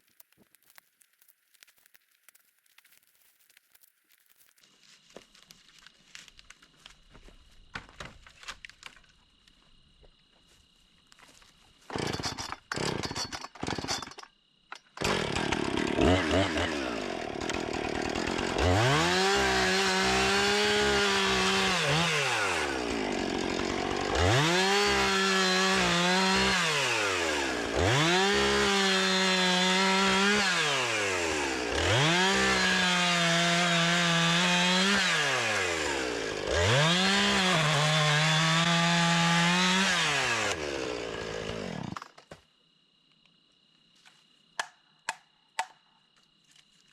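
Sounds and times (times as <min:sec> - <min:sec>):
chainsaw revving: 0:11.9 - 0:14.0, 0:15.0 - 0:42.0.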